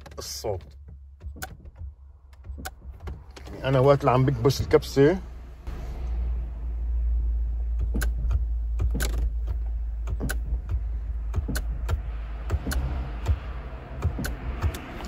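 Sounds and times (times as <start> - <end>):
car relay clicking: 0.0 - 4.3, 7.7 - 15.0.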